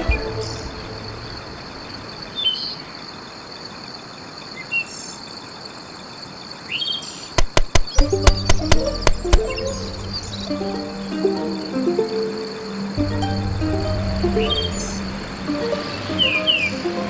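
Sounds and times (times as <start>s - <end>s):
birds chirping: 1.1s - 5.4s, 6.6s - 11.1s, 14.3s - 16.8s
sharp knocks on wood: 7.4s - 9.7s.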